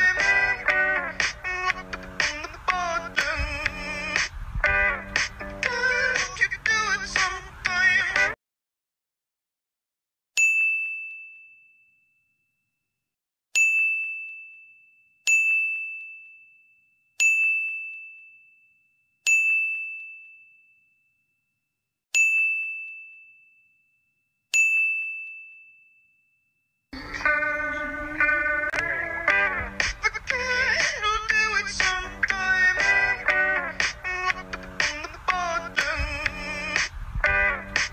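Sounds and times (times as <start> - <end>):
music: 0.0 - 8.4, 27.0 - 37.9.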